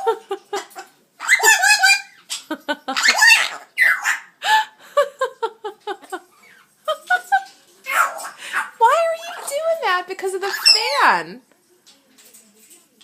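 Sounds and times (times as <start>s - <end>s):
parrot laugh-like calls: 0.0s - 4.7s
parrot squawking: 0.6s - 4.4s, 7.8s - 11.2s.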